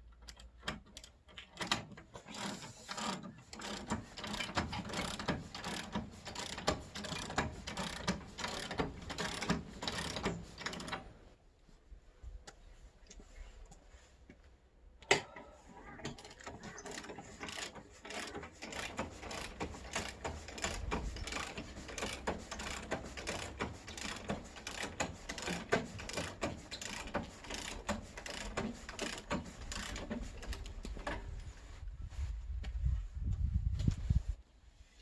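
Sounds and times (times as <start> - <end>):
jack gears clicking: 0.1 - 11.1, 16.1 - 31.2.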